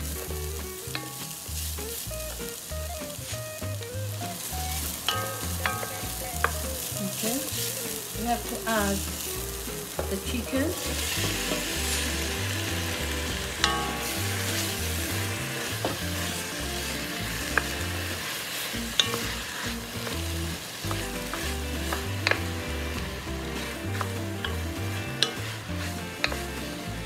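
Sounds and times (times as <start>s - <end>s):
chicken wings sizzling: 0.0s - 27.0s
wooden spoon knocking on pot: 8.3s - 12.3s, 13.0s - 16.3s, 18.8s - 27.0s.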